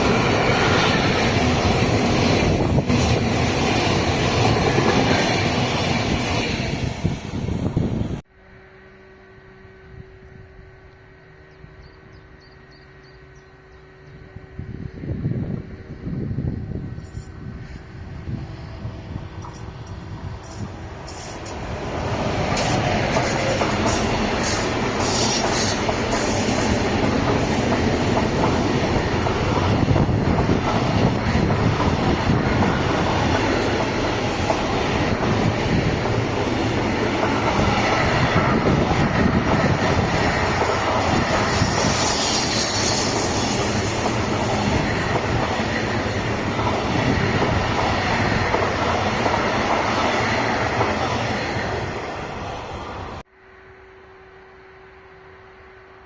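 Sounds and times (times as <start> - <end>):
train wheels clattering on rails: 19.3 - 51.9.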